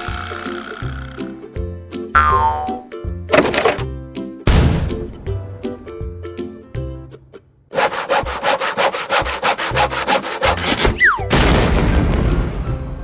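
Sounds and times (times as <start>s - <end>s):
rhythmic rasping like sawing: 7.7s - 11.0s.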